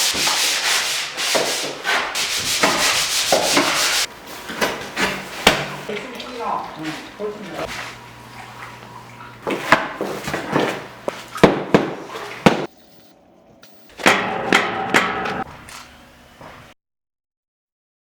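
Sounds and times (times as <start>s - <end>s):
hammering and clattering impacts: 9.6s - 12.8s, 14.0s - 16.6s.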